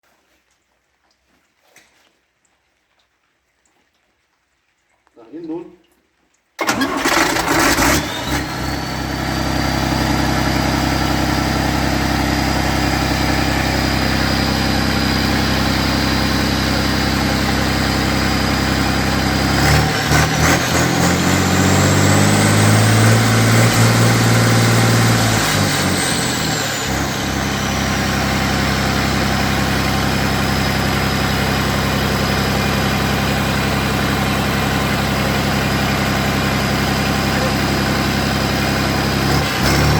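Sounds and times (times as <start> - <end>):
diesel engine running and revving: 6.6 - 39.9
high whine: 8.2 - 39.0.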